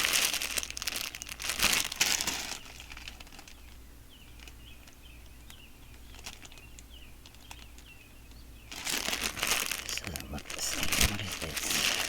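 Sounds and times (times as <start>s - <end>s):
plastic packaging crinkling: 0.0s - 7.9s, 8.7s - 12.0s
small bird chirping: 2.4s - 10.4s.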